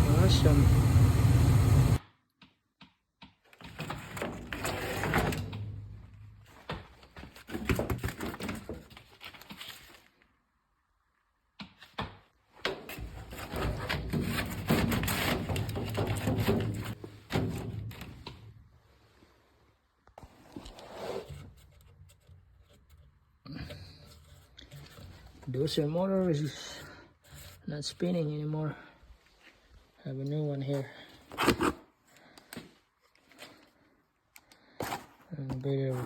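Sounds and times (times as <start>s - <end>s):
steady low hum: 0.0s - 2.0s.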